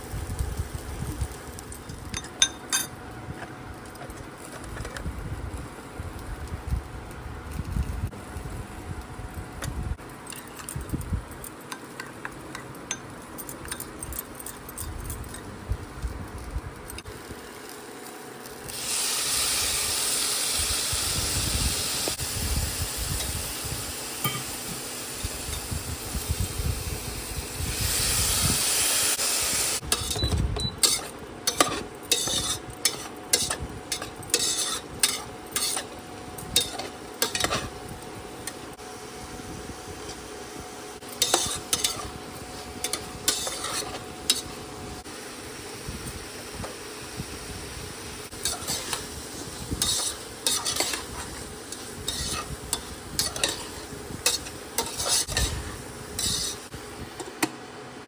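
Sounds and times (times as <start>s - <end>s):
food sizzling in a pan: 17.0s - 57.4s
spatula scraping a pan: 29.9s - 36.0s, 36.6s - 37.8s, 41.1s - 44.6s, 48.4s - 56.7s.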